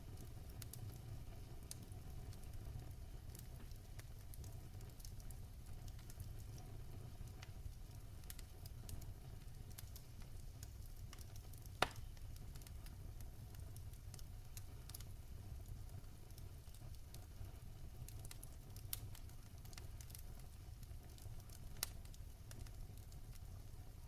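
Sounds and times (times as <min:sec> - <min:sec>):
fire crackling: 0:00.0 - 0:24.0
fire rumbling: 0:00.0 - 0:24.0
loud sharp pop: 0:11.8 - 0:12.0.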